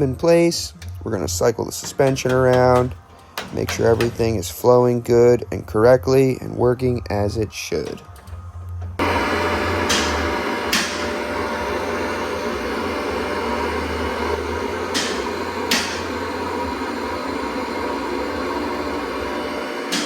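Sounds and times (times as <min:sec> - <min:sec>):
machine humming: 0:00.0 - 0:20.0
sharp knocks: 0:01.8 - 0:04.3.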